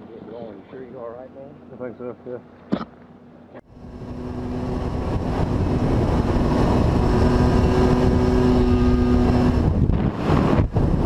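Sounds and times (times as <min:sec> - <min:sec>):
motorcycle engine drone: 0:03.6 - 0:11.0
wind buffeting microphone: 0:03.7 - 0:11.0.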